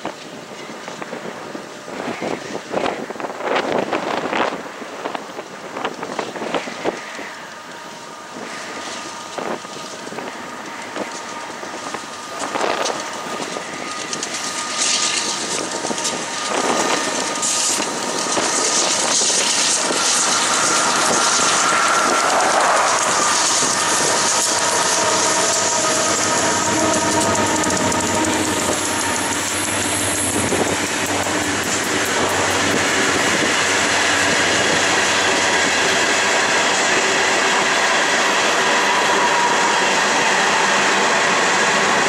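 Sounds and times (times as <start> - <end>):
diesel locomotives passing: 0.0 - 42.0
wheel on rail rumble and clatter: 0.0 - 42.0.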